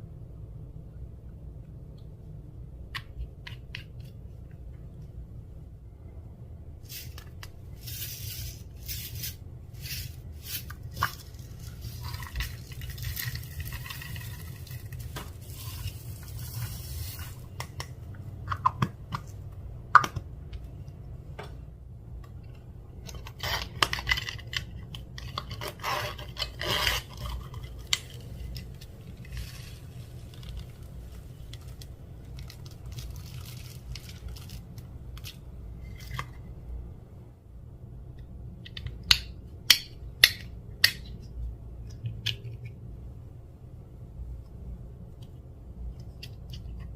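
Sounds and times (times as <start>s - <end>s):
steady low hum: 0.0s - 46.9s
slime squishing and squelching: 6.9s - 17.9s.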